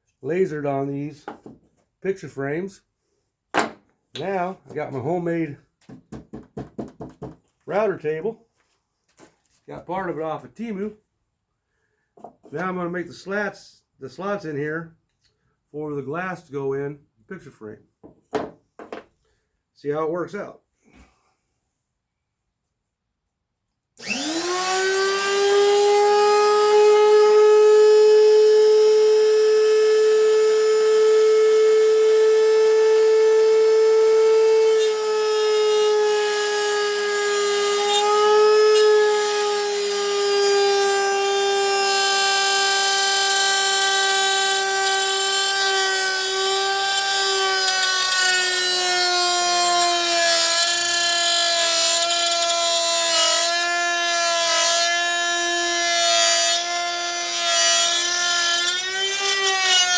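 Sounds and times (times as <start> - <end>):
router whining: 24.0 - 59.9.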